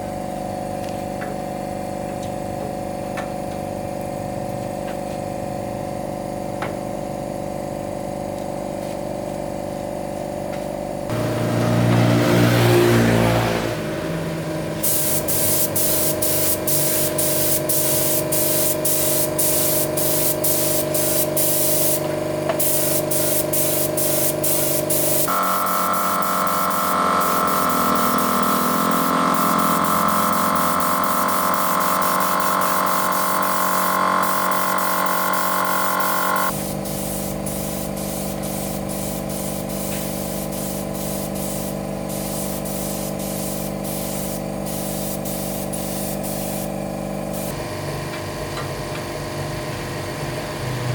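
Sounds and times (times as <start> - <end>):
air compressor hum: 0.0 - 50.8
spray gun hissing in pulses: 14.4 - 47.6.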